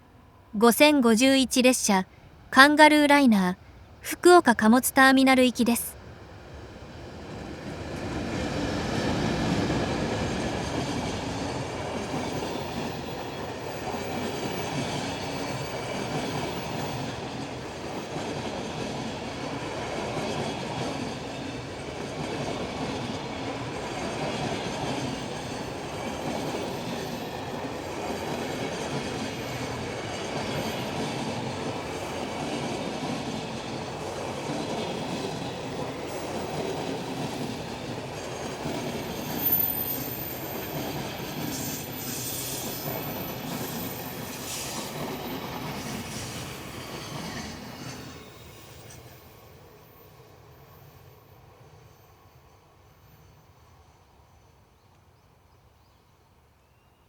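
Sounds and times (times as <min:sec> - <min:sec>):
freight train wheels rolling on rails: 0:06.5 - 0:49.1.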